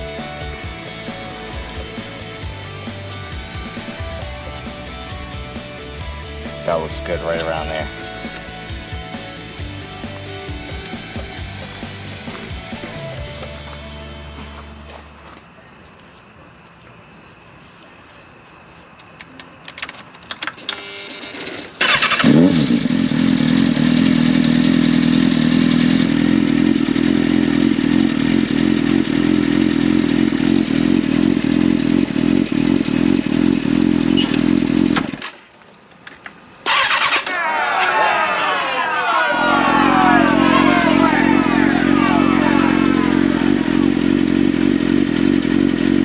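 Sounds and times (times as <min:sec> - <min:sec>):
motorcycle engine starting and idling: 0:21.6 - 0:35.1, 0:36.7 - 0:37.2, 0:43.5 - 0:46.0.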